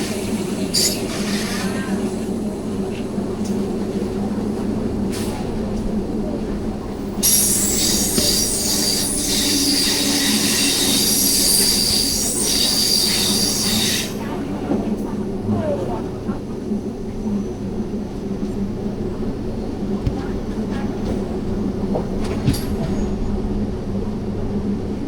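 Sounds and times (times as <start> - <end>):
train rumbling on track: 0.0 - 25.0
high-pitched wheel squeal: 7.2 - 14.1.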